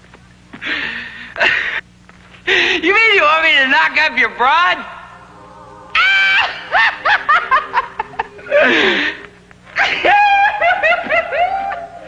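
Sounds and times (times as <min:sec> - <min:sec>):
person laughing: 0:06.0 - 0:09.2
breathy intake: 0:08.4 - 0:09.4.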